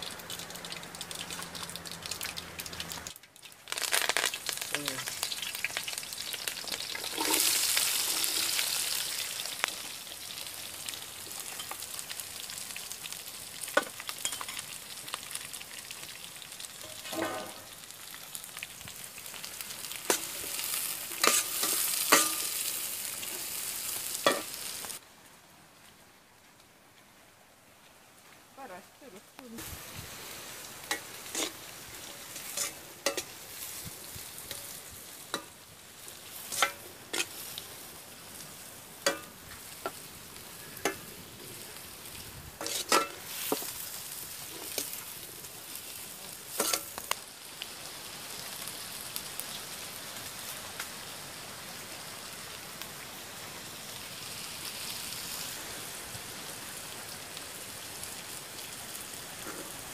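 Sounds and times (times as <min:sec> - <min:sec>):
onions sizzling in a wok: 0:00.0 - 0:25.0, 0:28.6 - 0:59.9
metal ladle scraping a pan: 0:06.9 - 0:08.6, 0:16.8 - 0:17.8, 0:20.0 - 0:23.6, 0:30.8 - 0:33.4, 0:36.4 - 0:37.6, 0:42.6 - 0:43.7, 0:46.5 - 0:46.9.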